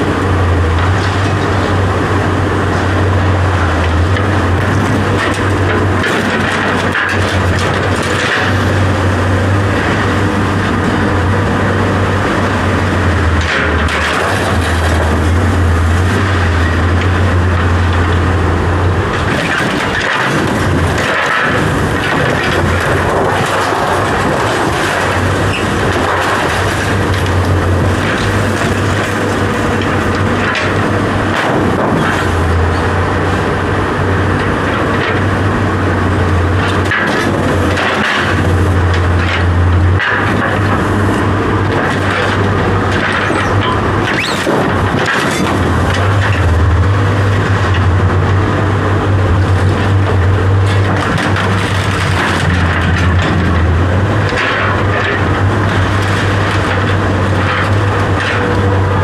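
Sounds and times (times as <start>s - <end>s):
knocks and clatter: 0.0s - 59.0s
low mechanical drone: 0.0s - 59.0s.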